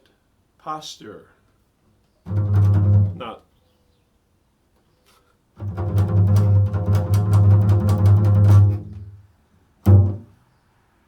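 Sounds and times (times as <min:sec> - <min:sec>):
low-pitched instrument notes: 0:02.3 - 0:03.3, 0:05.6 - 0:09.2, 0:09.9 - 0:10.3.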